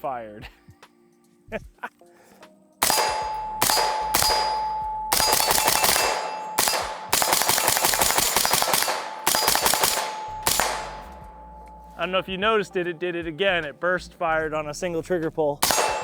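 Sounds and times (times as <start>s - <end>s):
suppressed rifle shots: 2.8s - 12.0s, 15.6s - 16.0s
steel target ringing: 2.8s - 12.3s, 15.6s - 16.0s.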